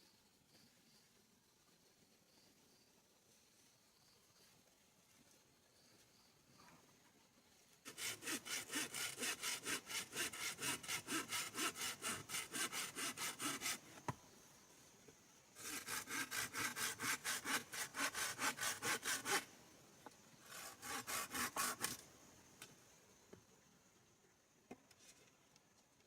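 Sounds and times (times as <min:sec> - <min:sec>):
hand saw cutting wood: 0:07.8 - 0:14.0, 0:15.6 - 0:19.5, 0:20.4 - 0:22.0.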